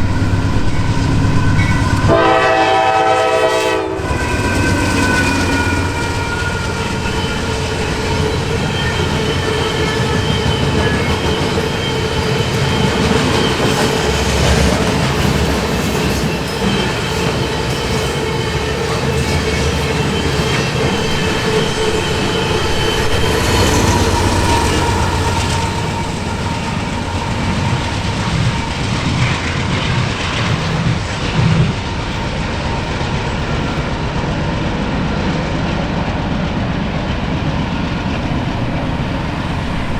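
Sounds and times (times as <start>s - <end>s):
high wheel squeal: 0.0s - 2.9s, 3.9s - 31.1s
train wheels clicking over rail joints: 4.0s - 36.3s.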